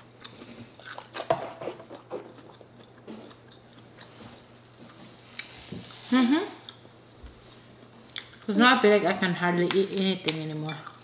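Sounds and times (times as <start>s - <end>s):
person chewing: 0.0s - 5.6s.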